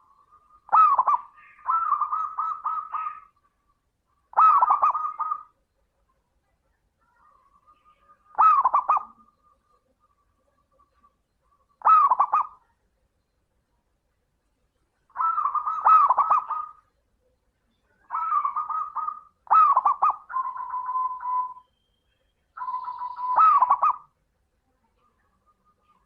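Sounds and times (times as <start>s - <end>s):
dove cooing: 0.0s - 3.6s, 4.2s - 5.6s, 7.3s - 12.7s, 15.1s - 16.9s, 18.0s - 21.6s, 22.6s - 24.1s.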